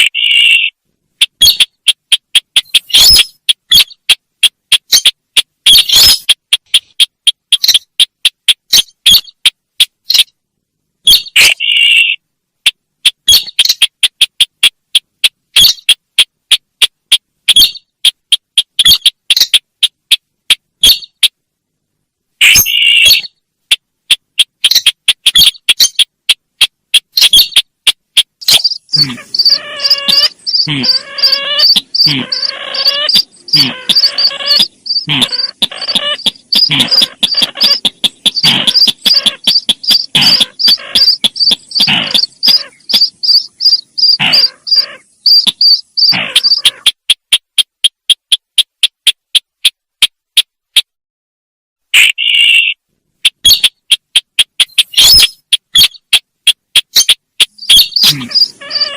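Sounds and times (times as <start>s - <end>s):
sharp bird chirps and ticks: 0.0s - 10.4s, 11.0s - 21.5s, 22.4s - 50.9s, 51.9s - 58.9s
buzzing pulsing bird call: 28.8s - 46.9s.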